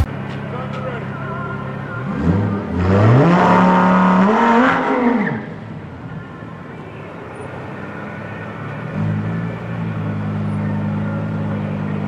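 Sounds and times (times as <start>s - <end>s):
sports car engine revving: 2.0s - 5.6s.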